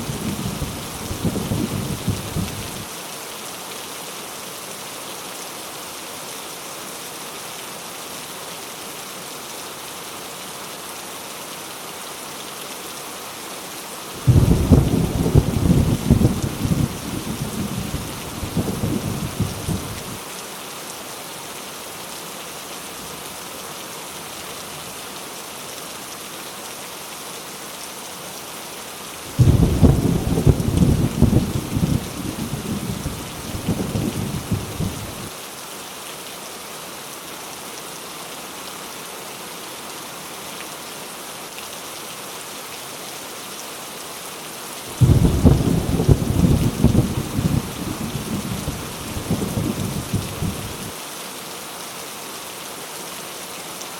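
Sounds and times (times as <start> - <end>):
heavy rain falling: 0.0 - 53.9
thunder rumbling: 14.3 - 20.0, 29.4 - 35.3, 45.0 - 50.9.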